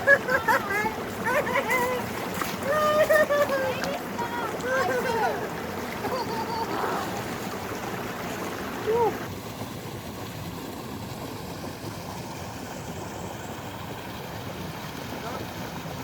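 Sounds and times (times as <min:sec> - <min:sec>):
stream rushing: 0:00.0 - 0:16.0.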